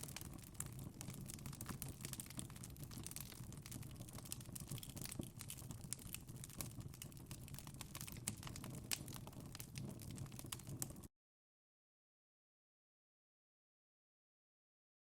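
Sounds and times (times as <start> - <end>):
fire popping and snapping: 0.0 - 11.1.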